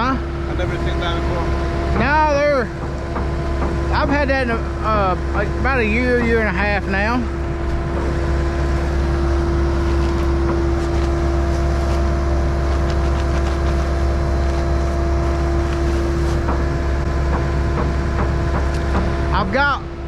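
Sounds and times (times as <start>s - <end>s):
diesel engine running: 0.0s - 20.0s
steady whine: 0.0s - 20.0s.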